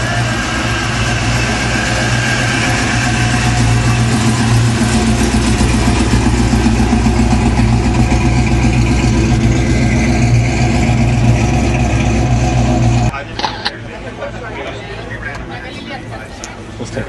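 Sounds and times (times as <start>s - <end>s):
engine idling loudly: 0.0s - 13.6s.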